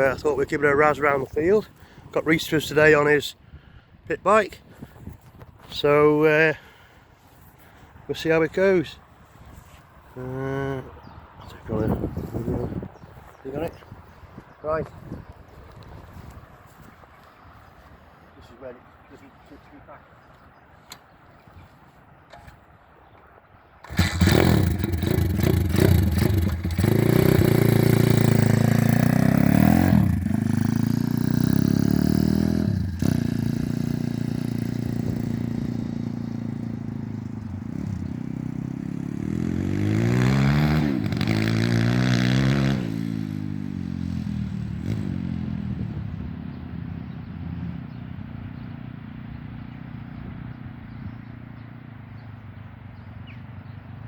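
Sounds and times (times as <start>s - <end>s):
motorbike engine revving: 23.8s - 48.2s.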